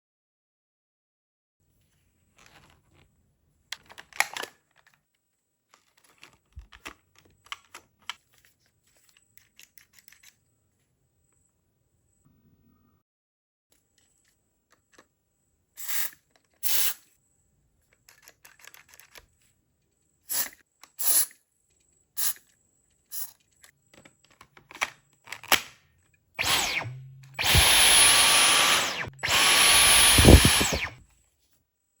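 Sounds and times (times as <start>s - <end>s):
vacuum motor whining: 26.4s - 31.0s.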